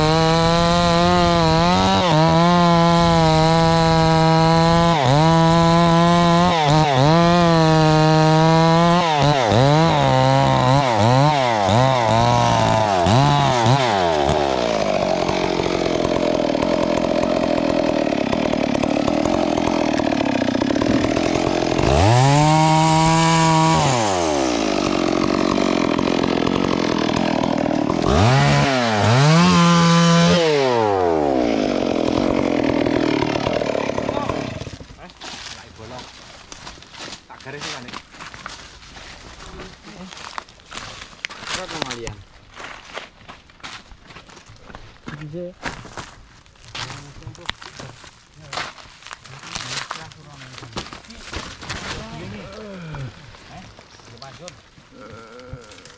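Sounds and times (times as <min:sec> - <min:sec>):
chainsaw revving: 0:00.0 - 0:34.8.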